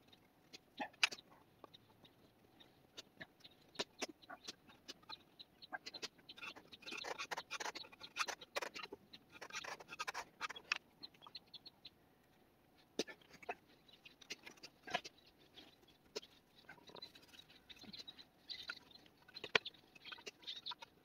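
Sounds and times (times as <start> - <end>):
scratching and clicking on wood: 3.0 - 10.8.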